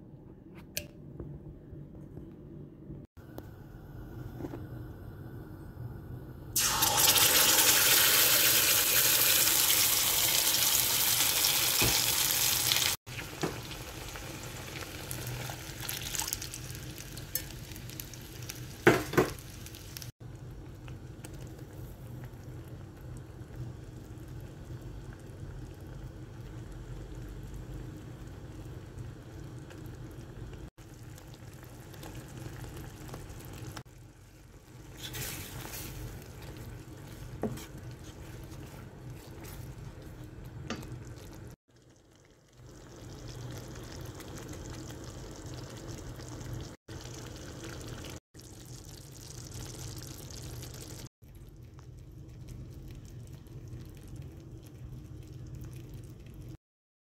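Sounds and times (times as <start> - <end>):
paste sizzling in hot oil: 6.6 - 20.1
spoon stirring mixture: 34.8 - 41.6.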